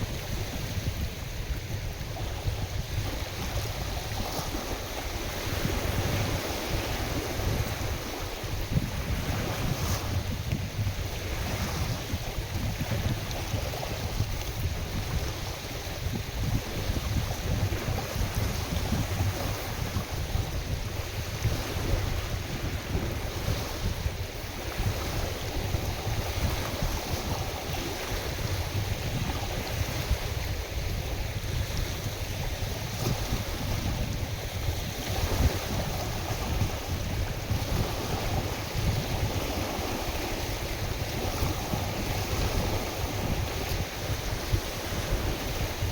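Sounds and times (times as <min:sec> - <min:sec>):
waves washing on lake: 0:00.0 - 0:45.9
wind buffeting microphone: 0:00.0 - 0:45.9.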